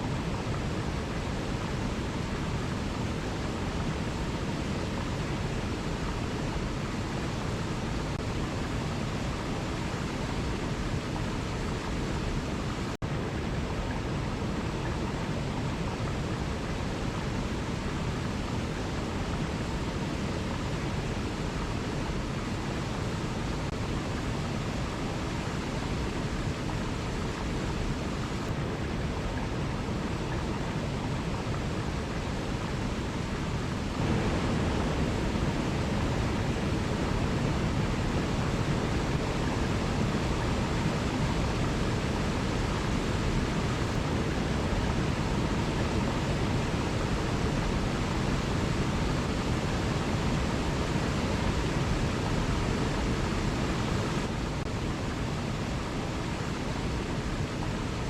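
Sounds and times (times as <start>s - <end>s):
waterfall rushing: 13.4s - 58.0s.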